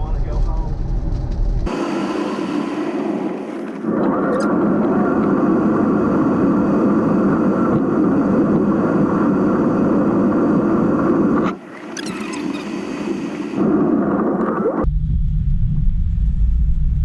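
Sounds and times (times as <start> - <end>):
heavy rain on driving car: 1.7 - 11.4.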